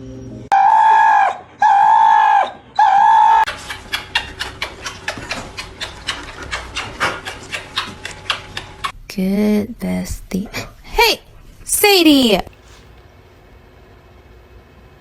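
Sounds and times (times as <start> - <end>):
animal crying: 0.5 - 9.0.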